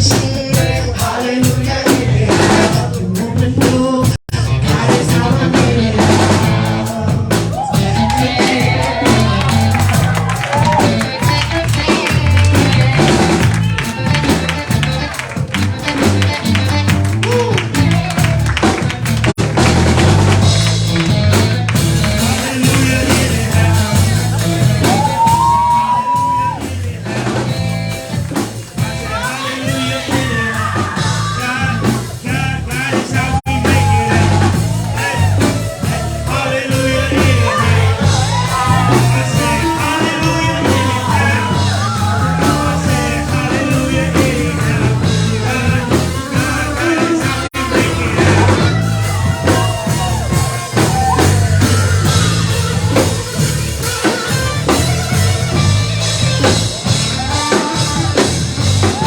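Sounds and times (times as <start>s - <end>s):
gospel band playing: 0.0s - 59.0s
person singing long notes: 28.9s - 54.4s.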